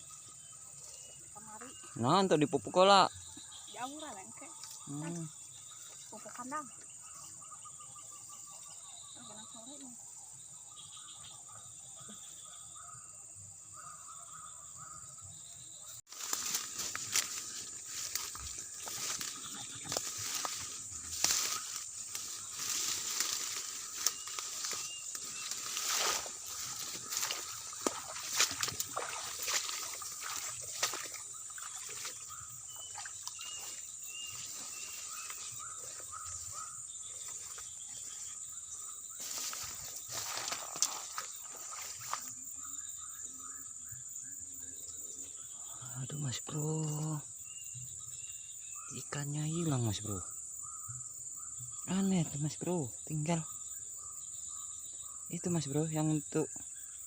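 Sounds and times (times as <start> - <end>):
bird chirping: 0.0 - 57.0
crickets droning: 0.0 - 57.0
crackling and rustling: 16.1 - 31.2.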